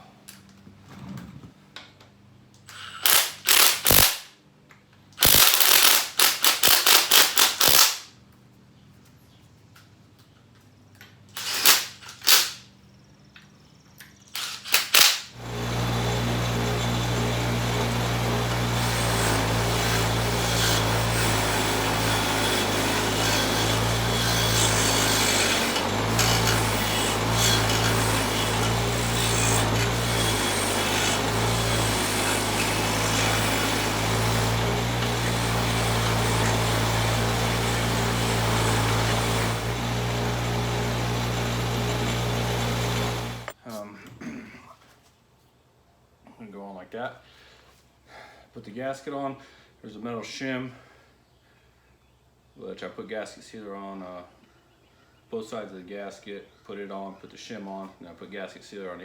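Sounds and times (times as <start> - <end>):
electric power tool running: 3.0 - 4.1, 5.2 - 7.9, 14.4 - 43.6.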